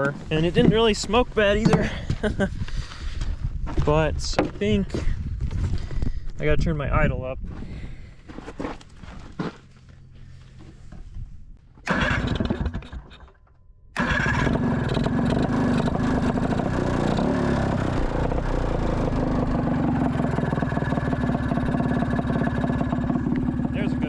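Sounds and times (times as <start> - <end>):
two-stroke engine running: 11.8 - 13.1, 14.0 - 24.0.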